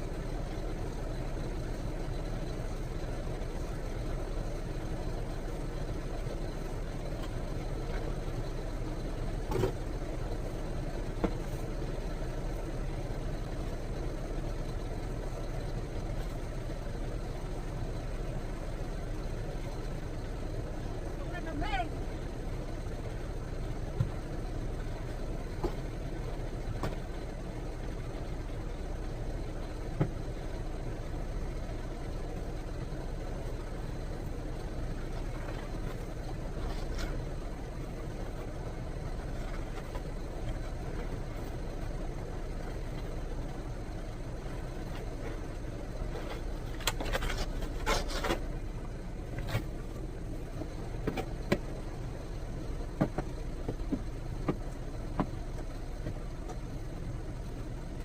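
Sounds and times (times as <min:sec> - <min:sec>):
engine rumbling: 0:00.0 - 0:58.0
scraping sounds: 0:46.1 - 0:48.6.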